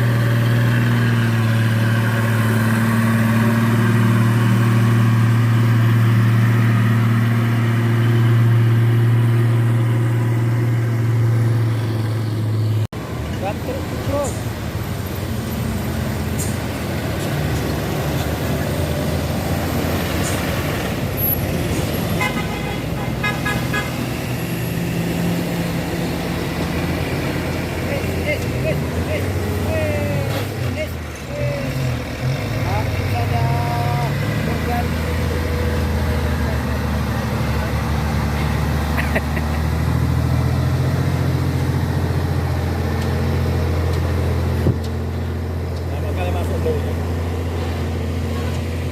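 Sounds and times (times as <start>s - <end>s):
heavy truck engine: 0.0s - 48.9s
vehicle horn toots: 22.1s - 24.1s.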